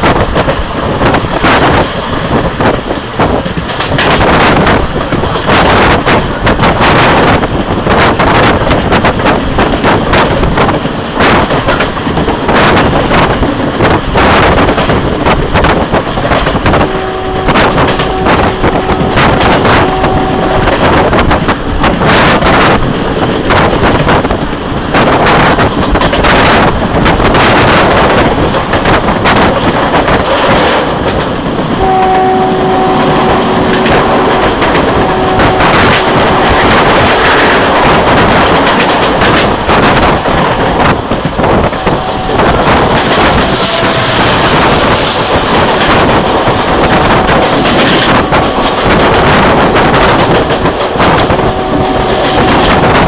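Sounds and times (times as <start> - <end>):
train wheels clattering on rails: 0.0 - 53.0
wind rush: 0.0 - 53.0
train horn: 16.7 - 21.2, 31.8 - 38.0, 41.4 - 45.0, 51.0 - 53.0.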